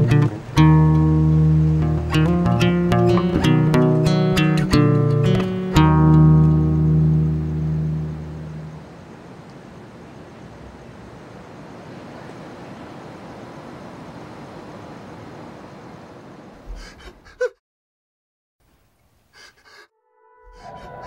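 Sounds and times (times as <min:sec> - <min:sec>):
acoustic guitar: 0:00.0 - 0:08.8
distant traffic hum: 0:05.3 - 0:17.0.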